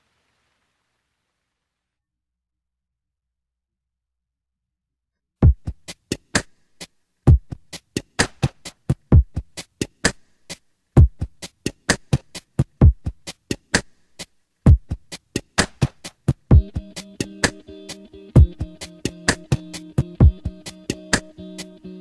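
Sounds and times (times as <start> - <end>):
drum machine beat: 5.4 - 22.0.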